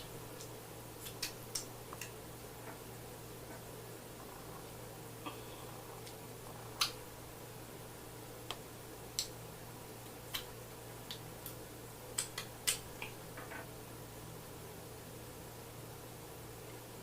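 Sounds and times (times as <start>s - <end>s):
steady low hum: 0.0s - 17.0s
wet eating clicks and smacks: 0.3s - 2.2s, 6.0s - 7.0s, 10.3s - 13.2s.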